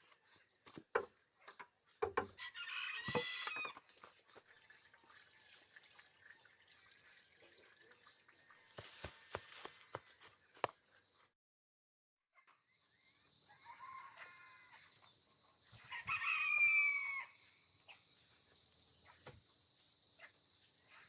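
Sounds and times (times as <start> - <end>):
rooster crowing: 2.4 - 3.6, 13.5 - 14.8, 15.8 - 17.4.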